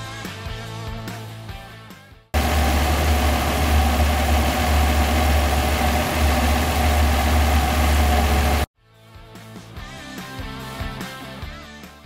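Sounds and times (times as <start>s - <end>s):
car engine idling: 2.4s - 8.7s.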